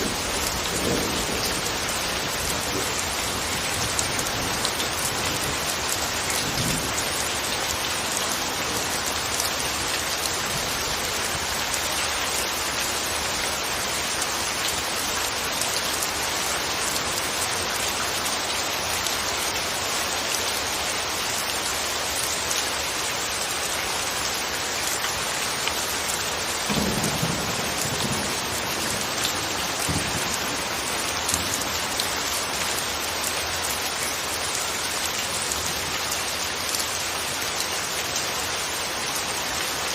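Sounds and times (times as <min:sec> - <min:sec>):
low thunder rumbles: 0:00.0 - 0:07.4, 0:26.7 - 0:32.0
steady rain falling: 0:00.0 - 0:39.9.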